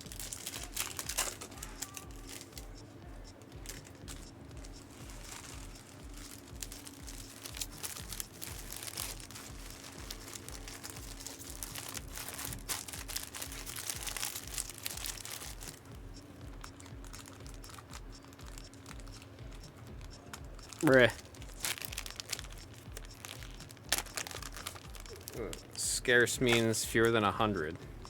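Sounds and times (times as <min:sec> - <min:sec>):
foil wrappers crinkling and tearing: 0:00.0 - 0:02.7, 0:03.6 - 0:15.8, 0:16.6 - 0:19.3, 0:20.3 - 0:25.8, 0:26.4 - 0:27.3
cards clicking: 0:00.0 - 0:02.8, 0:26.4 - 0:26.8.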